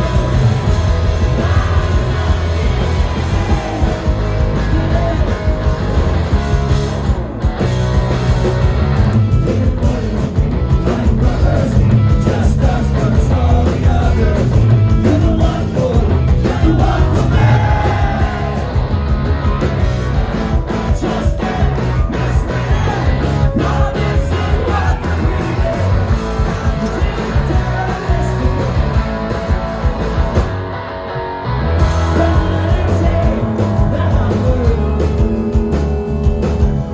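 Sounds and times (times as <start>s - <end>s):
person singing: 0.0s - 5.6s, 31.9s - 36.8s
rock band playing: 0.0s - 36.9s.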